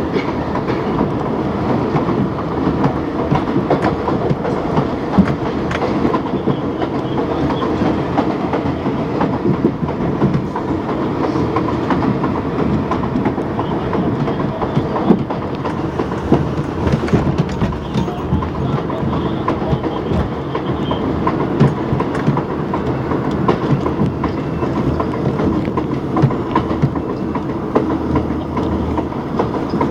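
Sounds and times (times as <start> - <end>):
track clicks and clacks: 0.0 - 29.9
wheels rumbling on rail: 0.0 - 29.9.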